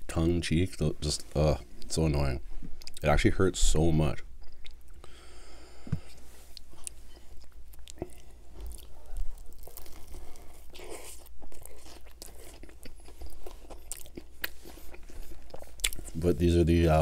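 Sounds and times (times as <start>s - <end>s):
crunching and chewing sandwich: 6.0s - 16.8s.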